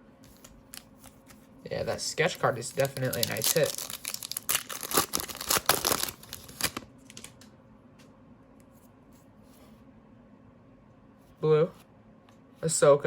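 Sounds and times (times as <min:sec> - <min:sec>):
wrapper tearing and crinkling: 0:02.7 - 0:07.4.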